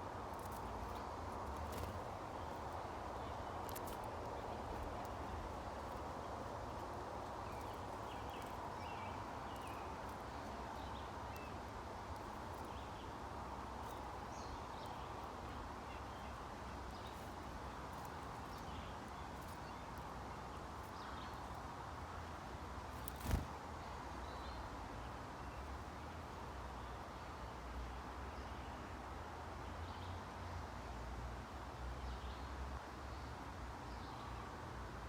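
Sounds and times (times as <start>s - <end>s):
small birds chirping: 0.0s - 27.6s
outdoor background hiss: 0.0s - 35.0s.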